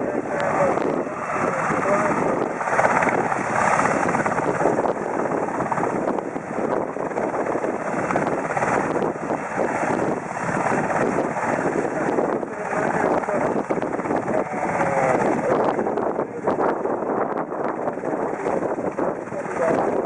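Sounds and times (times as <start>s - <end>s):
helicopter rotor and turbine: 0.0s - 20.0s.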